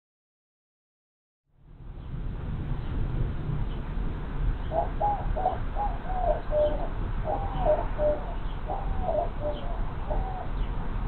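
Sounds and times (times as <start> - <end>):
bird hooting: 4.7 - 10.7.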